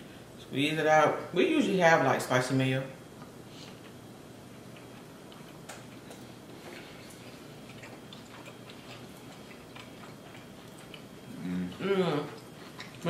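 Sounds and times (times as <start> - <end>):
mouths chewing with clicks and smacks: 3.2 - 13.0.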